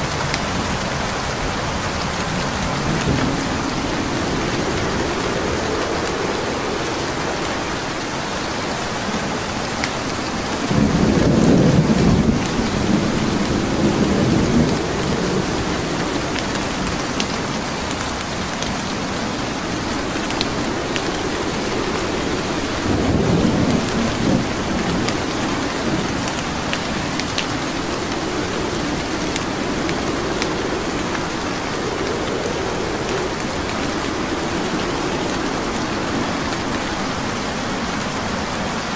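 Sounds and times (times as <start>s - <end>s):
heavy rain: 0.0s - 38.9s
wood fire crackling: 0.0s - 38.9s
low rumble: 18.6s - 38.5s.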